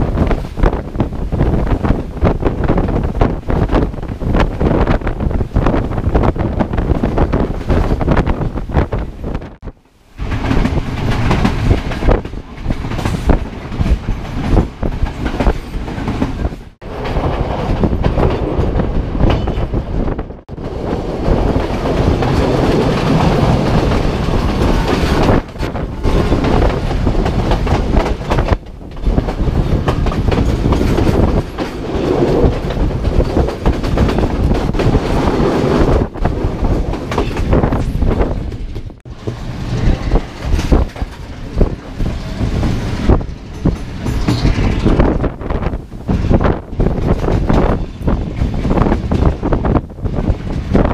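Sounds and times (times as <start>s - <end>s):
train rumble: 0.0s - 50.9s
wheels clattering over rail joints: 20.6s - 50.9s.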